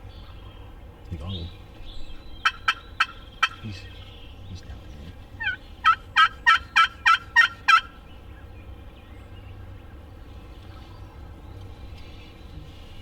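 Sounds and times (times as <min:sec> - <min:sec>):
turkey yelping: 0:02.4 - 0:03.6, 0:05.4 - 0:08.0.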